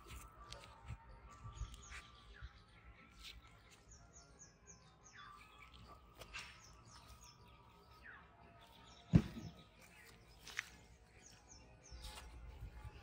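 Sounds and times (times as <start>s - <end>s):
small birds chirping: 0.0s - 13.0s
sharp thump: 9.1s - 9.6s.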